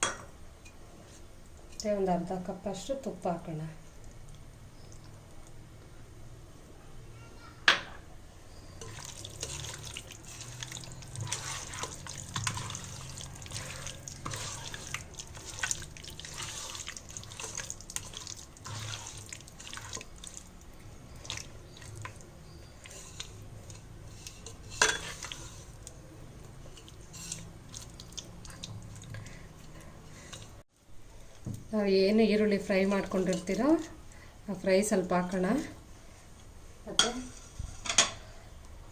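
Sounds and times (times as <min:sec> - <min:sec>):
wet squelching and stirring: 0:08.5 - 0:36.5.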